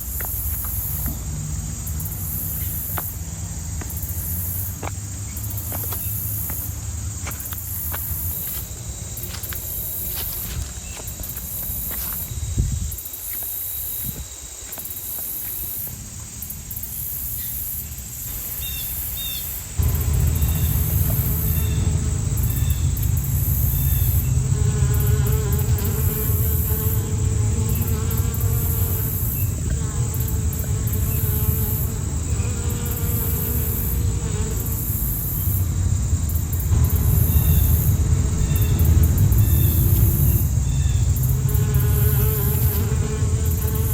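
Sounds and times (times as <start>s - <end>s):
crickets chirping: 0.0s - 43.9s
loud low rumble: 19.8s - 26.7s, 36.0s - 43.9s.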